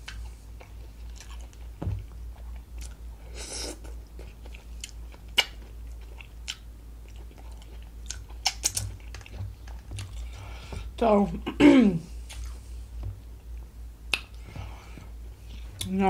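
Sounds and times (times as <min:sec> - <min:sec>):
person chewing: 0:00.0 - 0:11.0, 0:12.1 - 0:16.0
wet mouth clicks: 0:14.1 - 0:14.4.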